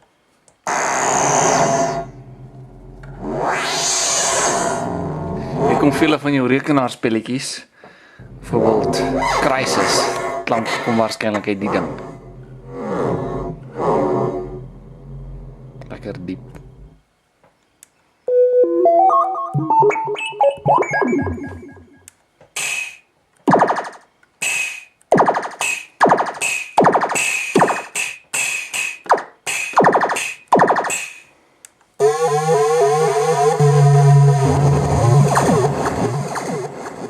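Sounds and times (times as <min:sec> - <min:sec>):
buzzy sustained synth tone: 0:01.0 - 0:06.0, 0:08.2 - 0:17.0, 0:32.0 - 0:37.0
low drone: 0:01.4 - 0:06.1, 0:08.2 - 0:17.0
synthesizer bleeping notes: 0:18.3 - 0:22.1, 0:32.0 - 0:37.0
noisy electronic hits: 0:33.6 - 0:37.0.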